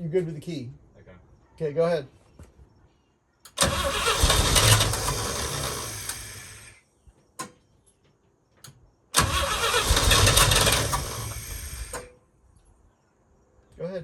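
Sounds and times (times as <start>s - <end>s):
engine cranked by starter: 3.5s - 6.8s, 9.2s - 12.1s.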